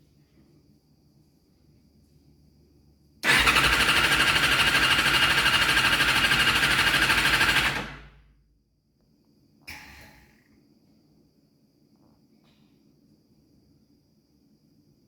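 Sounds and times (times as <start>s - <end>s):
motorcycle engine cranking: 3.2s - 8.0s.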